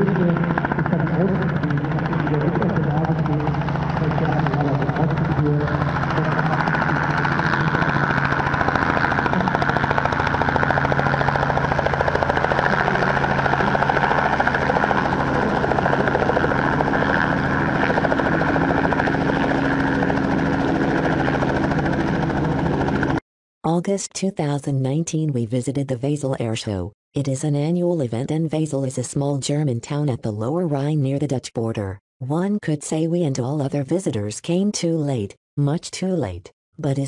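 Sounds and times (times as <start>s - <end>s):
helicopter engine and rotor drone: 0.0s - 23.2s.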